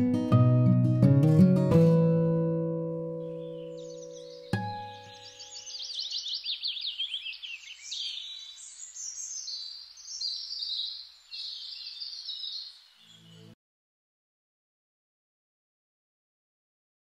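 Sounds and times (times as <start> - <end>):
songbird singing: 3.1 - 13.6.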